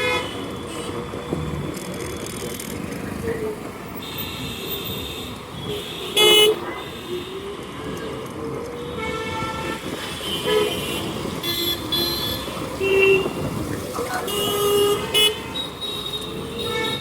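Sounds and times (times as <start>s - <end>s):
road traffic noise: 0.0s - 17.0s
vehicle horns tooting: 4.0s - 7.8s, 8.8s - 17.0s.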